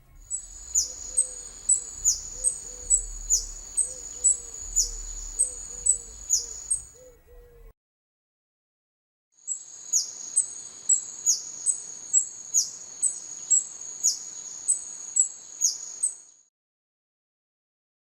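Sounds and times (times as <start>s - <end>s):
high-pitched whine: 0.0s - 7.7s
hummingbird chips: 0.2s - 6.9s.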